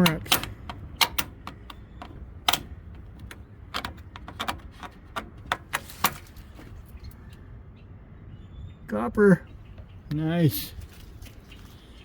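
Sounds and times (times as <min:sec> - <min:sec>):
metal tools clicking and clinking: 0:00.0 - 0:06.2.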